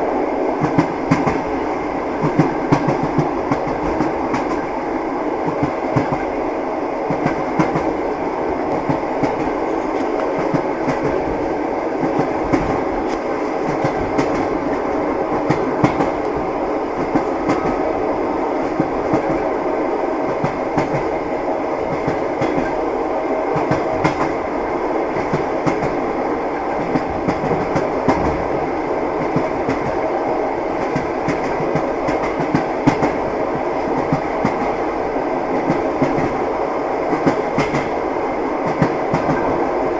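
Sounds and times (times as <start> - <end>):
rumble of moving train: 0.0 - 39.9
train wheels clicking over rail joints: 2.2 - 4.7, 5.4 - 6.3, 7.1 - 8.0, 8.6 - 17.8, 21.9 - 22.8, 23.5 - 24.4, 30.8 - 34.9, 37.1 - 38.0.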